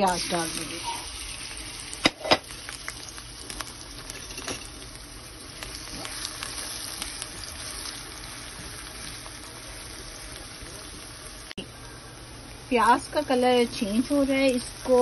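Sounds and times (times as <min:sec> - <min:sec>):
onion sizzling in hot oil: 0:00.0 - 0:15.0.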